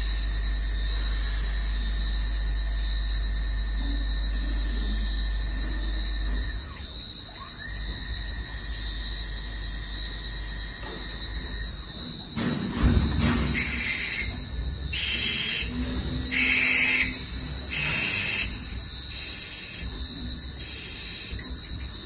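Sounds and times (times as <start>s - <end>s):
lathe high whine: 0.0s - 12.4s, 13.5s - 22.0s
heavy thump and rumble: 12.3s - 13.9s
hissing bursts of cutting: 17.7s - 18.5s, 19.1s - 19.9s.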